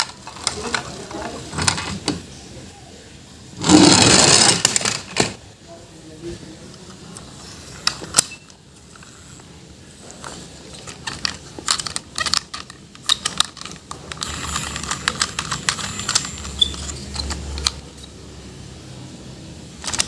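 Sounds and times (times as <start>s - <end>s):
packaging rustling: 0.0s - 2.0s, 10.0s - 17.6s
plastic toys clicking and tapping: 0.0s - 2.2s, 10.1s - 18.1s, 19.8s - 20.0s.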